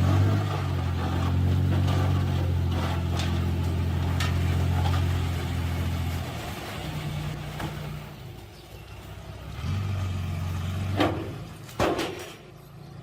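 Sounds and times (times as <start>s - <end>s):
heavy machinery diesel engine: 0.0s - 13.0s.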